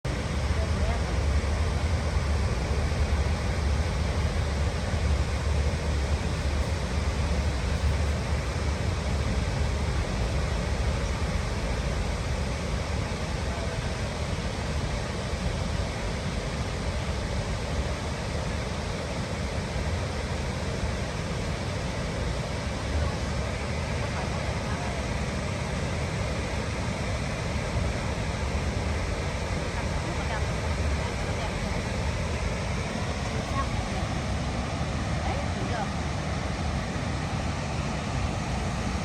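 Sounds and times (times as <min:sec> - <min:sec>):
waterfall rushing: 0:20.5 - 0:39.0.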